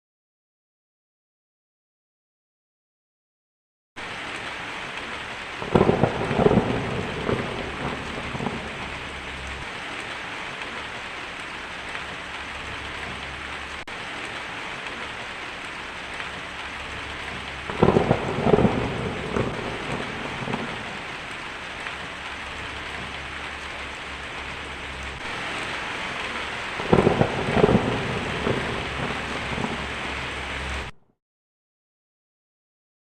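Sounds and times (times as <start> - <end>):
heavy rain hissing: 4.0 - 31.0
thunder rumbling: 4.8 - 31.0.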